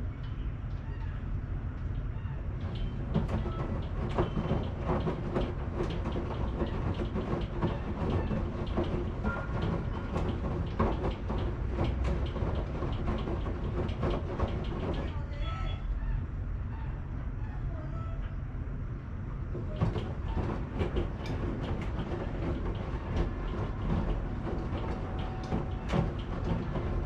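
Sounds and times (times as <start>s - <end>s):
washing machine rumbling: 0.2s - 16.3s, 19.1s - 27.0s
washing machine drum clicks: 2.6s - 15.2s, 19.6s - 27.0s.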